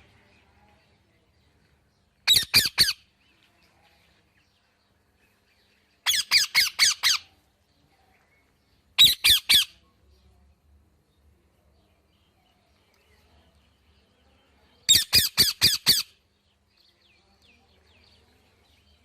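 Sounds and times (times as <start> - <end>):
parrot squawking: 2.3 - 3.0, 6.1 - 7.3, 9.0 - 9.8, 14.9 - 16.1.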